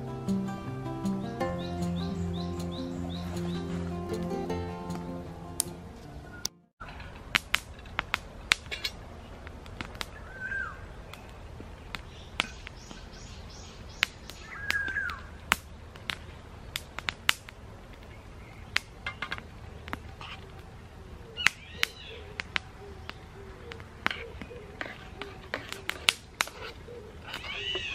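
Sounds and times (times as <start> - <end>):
bird chirping: 0.3 - 5.3, 10.1 - 15.4, 18.0 - 26.0
wood fire crackling: 6.9 - 13.0, 14.0 - 27.9.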